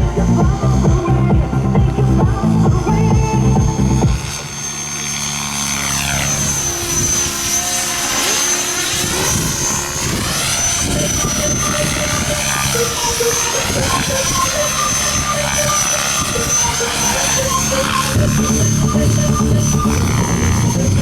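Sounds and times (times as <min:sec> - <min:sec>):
electronic music: 0:00.0 - 0:04.4, 0:10.5 - 0:21.0
helicopter flying by: 0:00.0 - 0:21.0.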